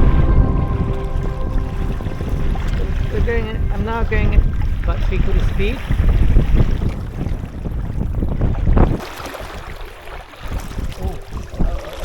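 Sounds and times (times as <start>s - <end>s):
water moving against kayak: 0.0s - 12.0s
wind buffeting microphone: 0.0s - 12.0s.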